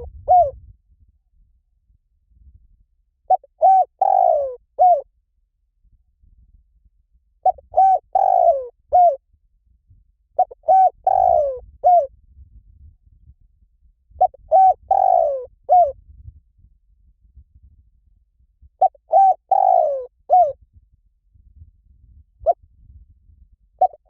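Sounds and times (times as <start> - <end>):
dove cooing: 0.0 - 0.6, 3.3 - 5.0, 7.4 - 9.2, 10.4 - 12.1, 14.2 - 16.0, 18.8 - 20.6, 23.8 - 24.0.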